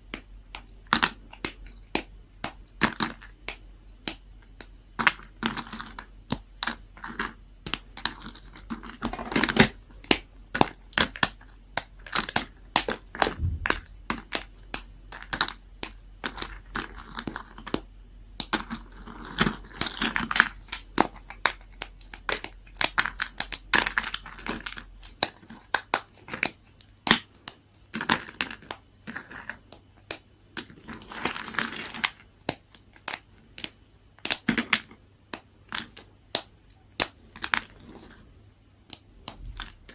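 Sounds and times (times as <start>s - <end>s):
soap cracking under a blade: 0.1s - 38.1s.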